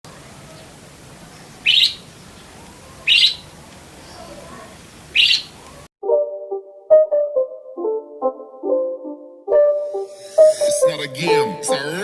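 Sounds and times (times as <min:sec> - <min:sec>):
budgerigar chirping: 0:01.6 - 0:02.0, 0:03.0 - 0:03.5, 0:05.1 - 0:05.6.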